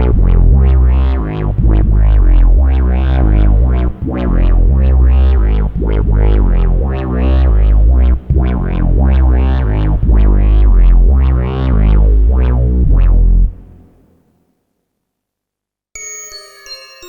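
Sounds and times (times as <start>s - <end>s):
synthesizer bass line: 0.0s - 14.1s.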